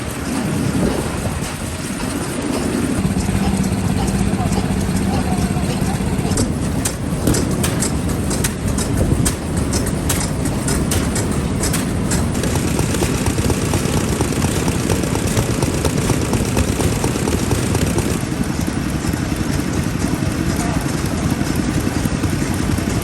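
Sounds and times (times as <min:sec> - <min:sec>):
stationary engines chugging: 0:00.0 - 0:23.0
sharp clicks: 0:02.5 - 0:20.0.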